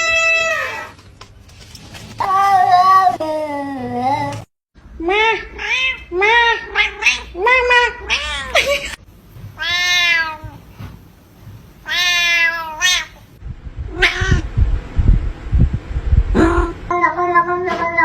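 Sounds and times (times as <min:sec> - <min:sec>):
cat meowing: 0:00.0 - 0:00.9, 0:05.1 - 0:08.6, 0:09.6 - 0:10.6, 0:11.8 - 0:13.2, 0:13.9 - 0:14.4
low thumps and bumps: 0:13.4 - 0:16.9.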